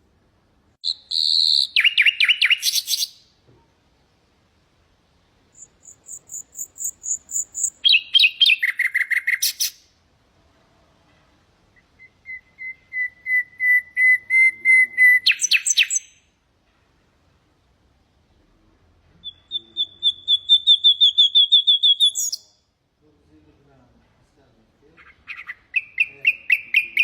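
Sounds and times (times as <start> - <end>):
nightingale singing: 0.8 - 3.4, 5.5 - 9.9, 11.7 - 16.4, 19.2 - 22.7, 25.0 - 27.0.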